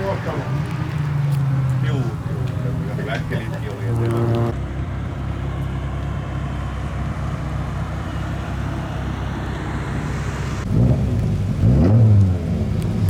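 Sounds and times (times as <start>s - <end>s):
low rumbling noise: 0.0s - 5.6s
car engine passing: 0.0s - 13.0s.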